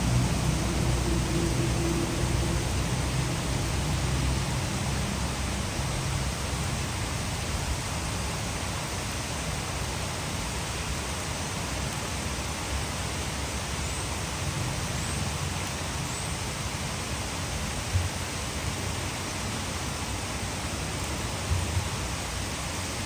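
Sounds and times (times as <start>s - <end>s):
low rumble: 0.0s - 6.9s
heavy rain: 0.0s - 23.0s
water rushing over dam: 0.0s - 23.0s.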